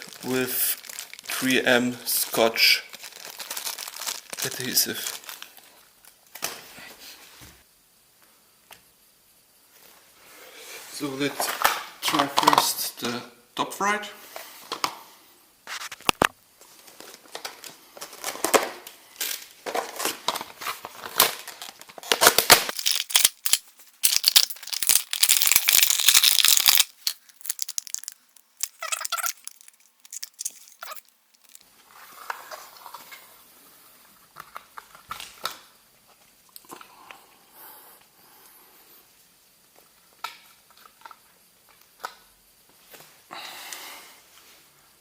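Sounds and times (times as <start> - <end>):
packaging crinkling and rustling: 0.8 - 1.3, 2.9 - 5.5, 21.5 - 31.6.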